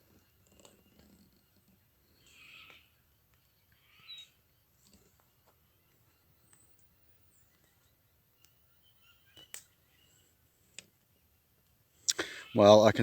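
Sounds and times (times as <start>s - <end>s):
faint clicks: 10.7s - 12.4s.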